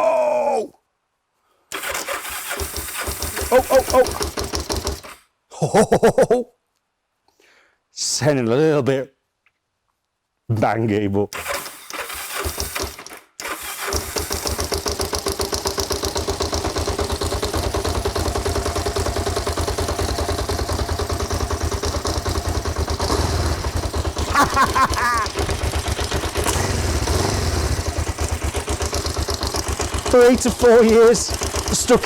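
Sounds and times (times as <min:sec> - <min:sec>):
motorcycle engine running: 0:02.4 - 0:05.2, 0:13.7 - 0:32.0.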